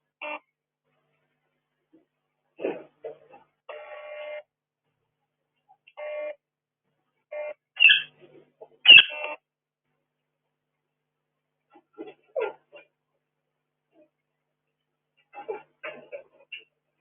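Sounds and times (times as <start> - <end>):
bird calling: 7.8 - 8.1, 8.8 - 9.3.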